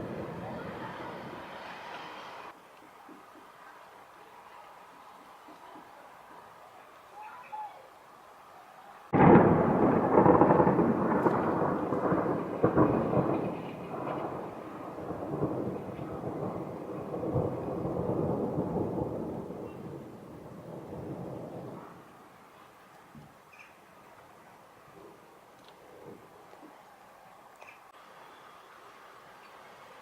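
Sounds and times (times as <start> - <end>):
thunder clap and rolling rumble: 0.0 - 2.0, 9.1 - 22.4.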